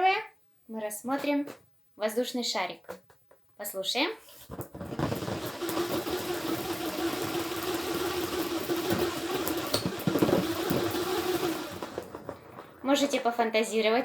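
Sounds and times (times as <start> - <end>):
nuts whirling in a balloon: 4.4 - 14.0.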